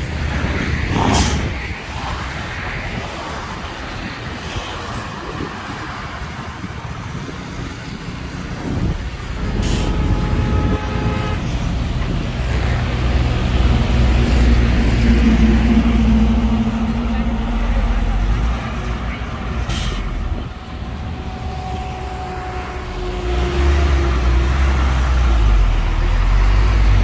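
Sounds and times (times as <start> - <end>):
diesel truck engine running: 6.3 - 21.4
steady tone: 13.2 - 25.8.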